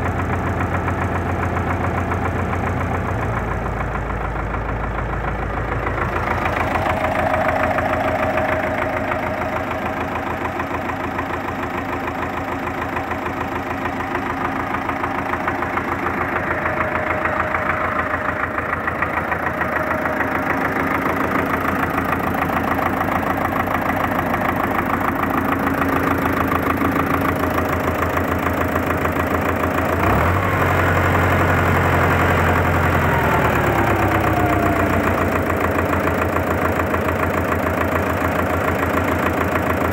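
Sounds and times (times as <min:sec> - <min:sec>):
diesel tractor engine idling: 0:00.0 - 0:39.9
deeper low hum: 0:05.8 - 0:11.7, 0:15.0 - 0:24.9
falling whine: 0:06.2 - 0:11.4.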